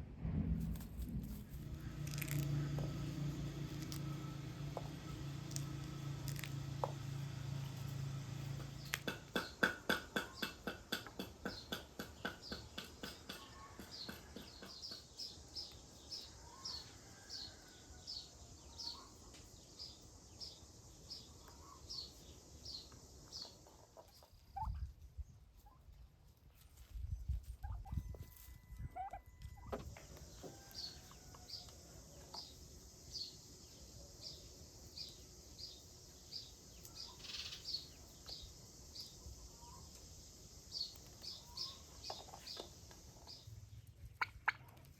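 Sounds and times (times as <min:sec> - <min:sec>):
low thumps: 0:00.0 - 0:03.1
small bird chirping: 0:01.5 - 0:25.9, 0:30.6 - 0:44.9
loud repeated bird calls: 0:08.6 - 0:17.6, 0:36.8 - 0:38.5.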